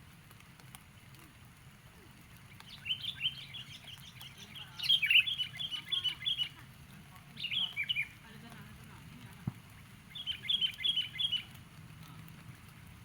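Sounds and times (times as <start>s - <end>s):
bird chirping: 2.6s - 6.6s, 7.2s - 8.2s, 9.7s - 11.6s.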